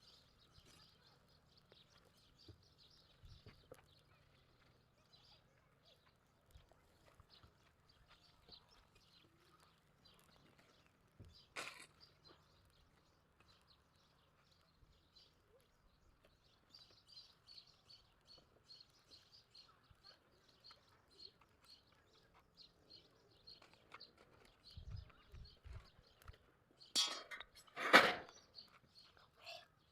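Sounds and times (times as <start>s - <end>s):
faint bird chirping: 0.0s - 29.9s.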